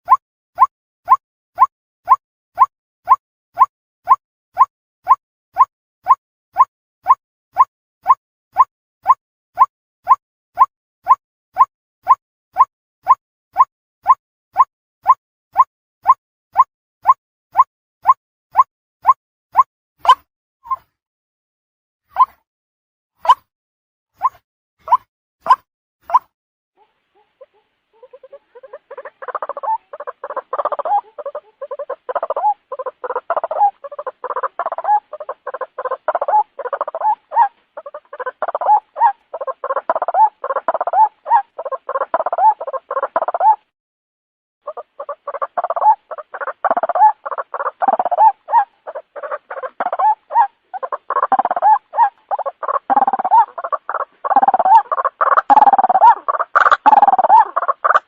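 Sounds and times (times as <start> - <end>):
waterhen calling: 24.2 - 43.6, 44.7 - 58.0.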